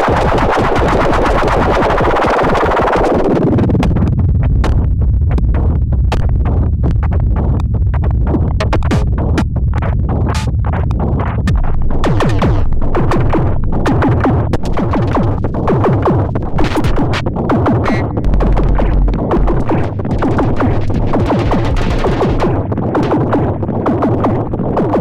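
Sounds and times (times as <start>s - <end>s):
electronic drum pattern: 0.0s - 3.2s, 8.3s - 25.0s
continuous low bass: 3.1s - 25.0s
deep bass note: 11.5s - 15.7s, 17.8s - 22.9s.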